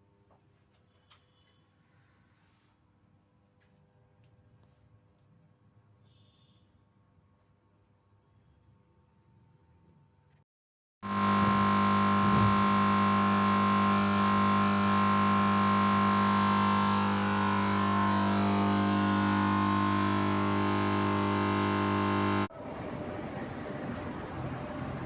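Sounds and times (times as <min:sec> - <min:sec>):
electrical panel mains hum: 0:11.0 - 0:25.0
high whine: 0:11.0 - 0:25.0.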